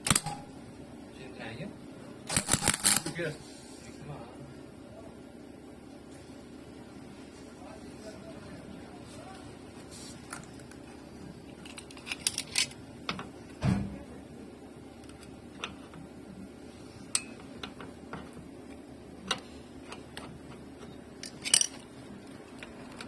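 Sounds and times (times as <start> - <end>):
dull thump: 13.6 - 14.0.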